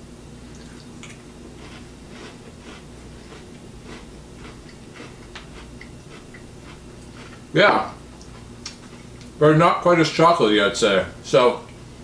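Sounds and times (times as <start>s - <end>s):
low steady hum: 0.0s - 12.0s
soft chewing crunches: 0.4s - 9.4s.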